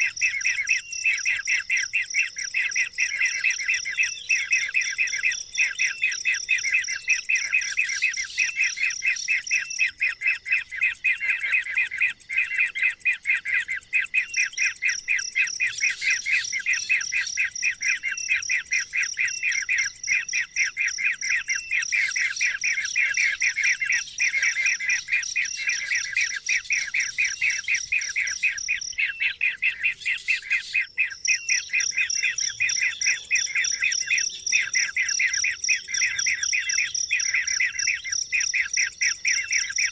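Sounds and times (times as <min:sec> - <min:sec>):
bird chirping rapidly: 0:15.6 - 0:39.9.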